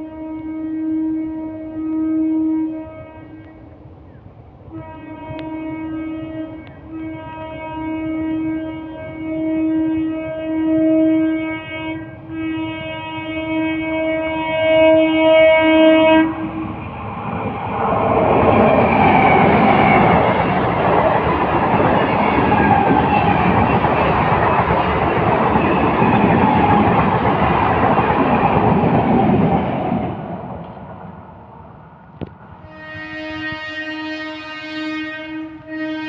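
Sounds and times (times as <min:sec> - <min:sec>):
train horn: 0:00.0 - 0:03.7, 0:04.7 - 0:16.9, 0:32.6 - 0:36.0
train wheels rolling on rails: 0:16.1 - 0:36.0.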